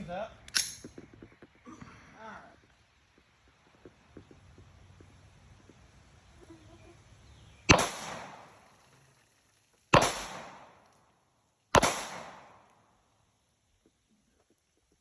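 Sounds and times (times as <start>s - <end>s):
gunshots: 7.7s - 8.5s, 9.9s - 10.8s, 11.7s - 12.6s.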